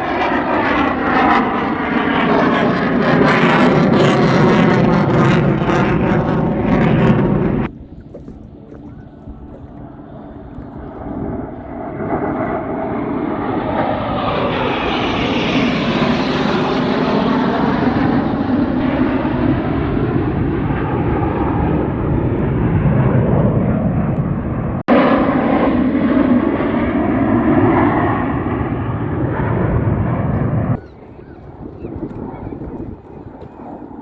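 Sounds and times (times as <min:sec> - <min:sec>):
airplane engine passing: 0:00.0 - 0:34.0.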